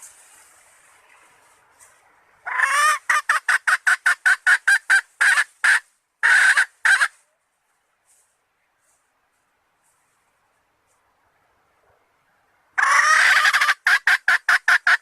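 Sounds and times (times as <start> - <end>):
junglefowl hen clucking: 2.4 - 7.2, 12.8 - 15.0.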